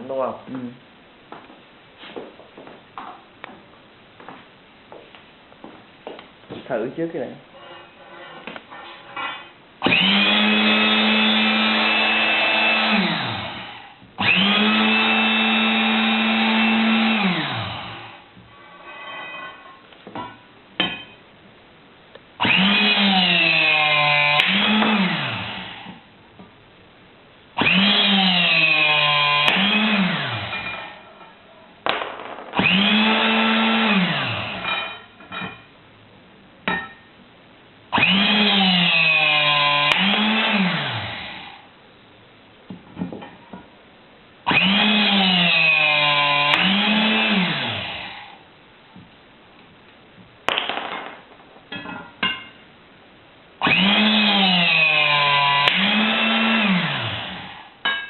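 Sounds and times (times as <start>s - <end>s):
electric motor whining: 9.9s - 18.1s, 53.6s - 57.6s.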